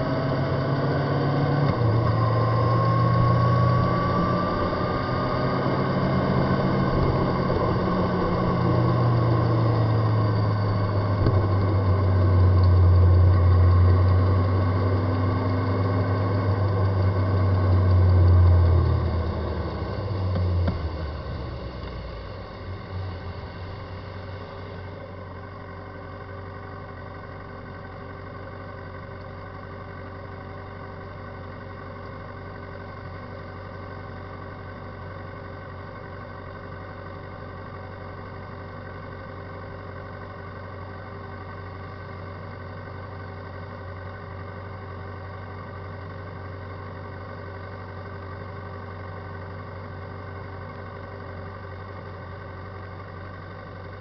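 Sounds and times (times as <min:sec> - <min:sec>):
motorcycle wheel mechanical drone: 0:00.0 - 0:27.0.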